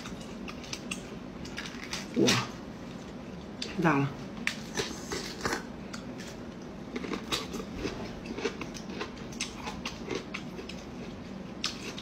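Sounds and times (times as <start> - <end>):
wet chewing crunches: 4.5 - 12.0.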